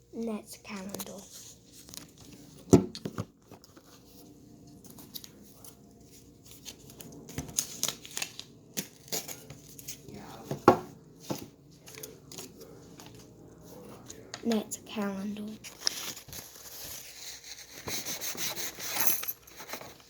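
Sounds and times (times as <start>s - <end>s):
paper packaging rustling and tearing: 4.8s - 10.2s, 15.0s - 20.0s.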